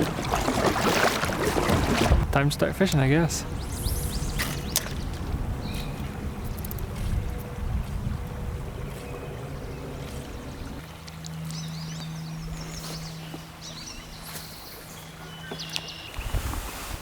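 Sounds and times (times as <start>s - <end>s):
low hum: 0.0s - 16.3s
birds chirping: 2.4s - 7.6s, 8.2s - 16.4s.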